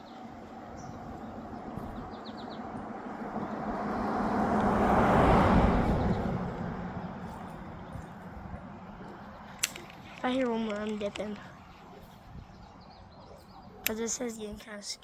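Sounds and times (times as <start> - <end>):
bird chirping: 0.0 - 2.8, 7.0 - 14.5
vehicle passing by: 0.1 - 13.2.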